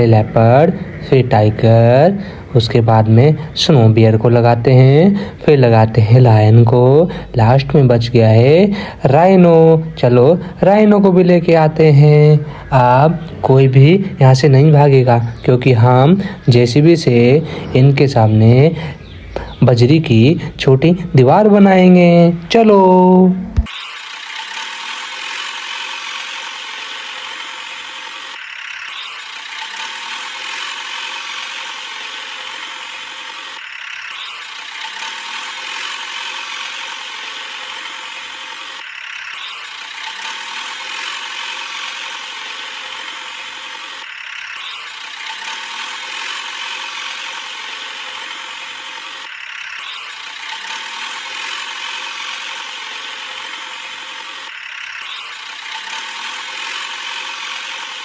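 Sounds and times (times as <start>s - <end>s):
toy motor and gears whirring: 0.0s - 58.0s.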